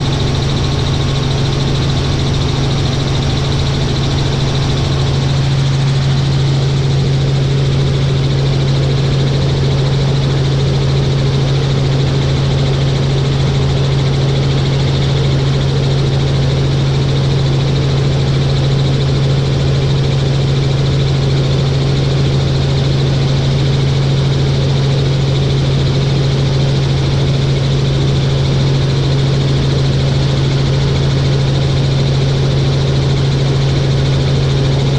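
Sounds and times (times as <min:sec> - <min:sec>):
helicopter engine and rotor drone: 0:00.0 - 0:08.4, 0:23.4 - 0:34.9.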